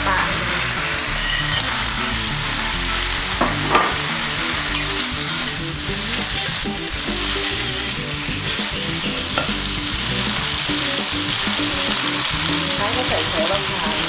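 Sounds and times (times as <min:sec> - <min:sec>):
fish sizzling in a pan: 0:00.0 - 0:14.0
spatula clicking against pan: 0:04.7 - 0:05.5.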